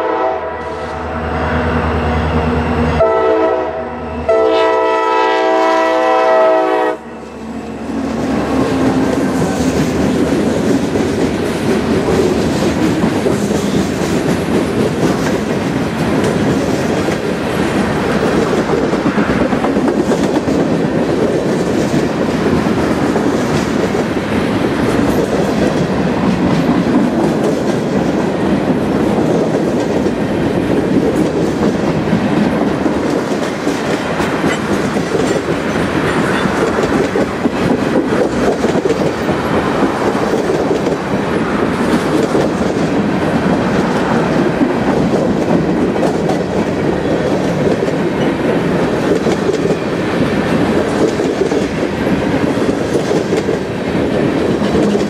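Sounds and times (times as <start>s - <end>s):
freight train rumbling past: 0.0s - 55.0s
wheels clacking over rail joints: 8.0s - 55.0s.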